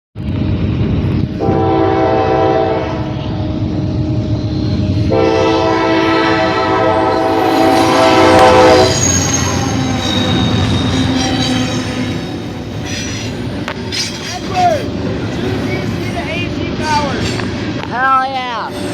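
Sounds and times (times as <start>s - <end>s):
train rumbling past: 0.2s - 18.9s
locomotive horn blasts: 1.4s - 3.4s, 5.1s - 9.2s
thin high squeal: 8.7s - 14.7s.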